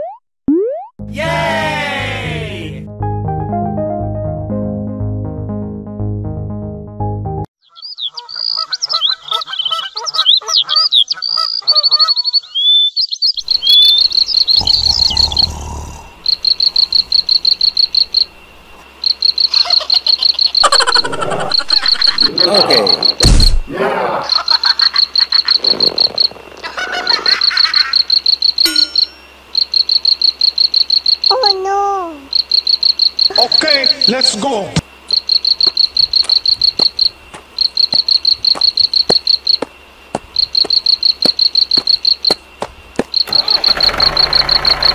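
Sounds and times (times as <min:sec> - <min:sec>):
whistling birdsong: 0:07.6 - 0:18.6
high pulsed chirping: 0:12.4 - 0:23.7, 0:24.3 - 0:31.7, 0:32.3 - 0:44.9
loud rough noises: 0:14.5 - 0:16.4, 0:43.3 - 0:44.9
sharp knock: 0:23.2 - 0:23.7.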